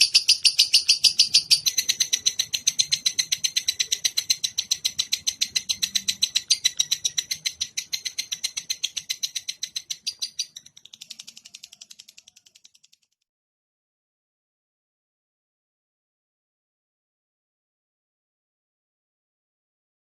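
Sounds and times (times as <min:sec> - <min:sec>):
songbird call: 0:00.0 - 0:10.6.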